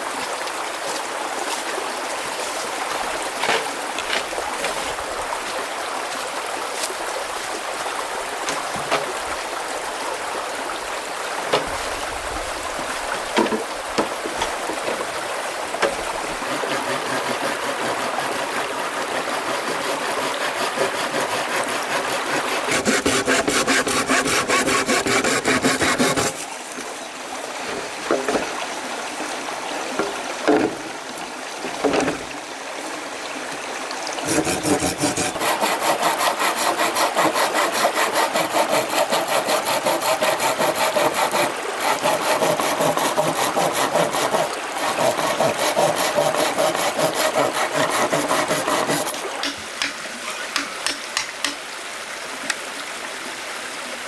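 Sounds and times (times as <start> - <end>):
hand saw cutting wood: 2.9 - 5.0, 8.5 - 9.2, 13.4 - 15.2, 15.8 - 26.9, 27.6 - 28.6, 34.2 - 51.6.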